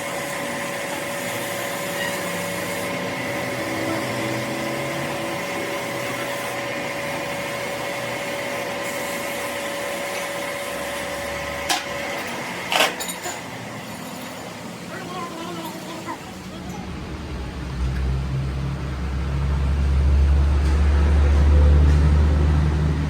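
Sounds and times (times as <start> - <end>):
machine whirring with high whine: 0.0 - 12.8.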